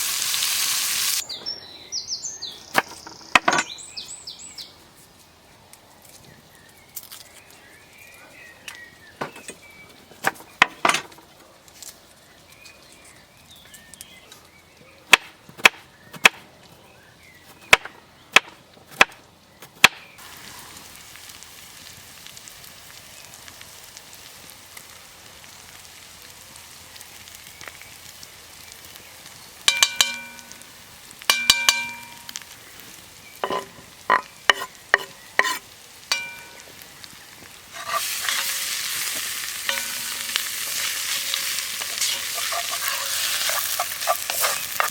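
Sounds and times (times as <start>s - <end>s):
food sizzling in pot: 0.0s - 1.3s, 20.1s - 44.9s
metal clanking against pot: 29.7s - 30.6s, 31.3s - 32.4s, 33.4s - 36.7s, 39.6s - 44.9s.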